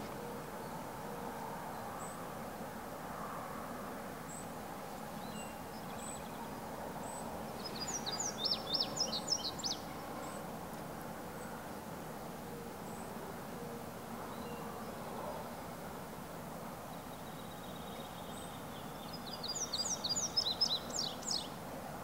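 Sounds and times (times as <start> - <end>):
woodland background hiss: 0.0 - 22.0
songbird singing: 4.2 - 15.8, 16.8 - 21.6.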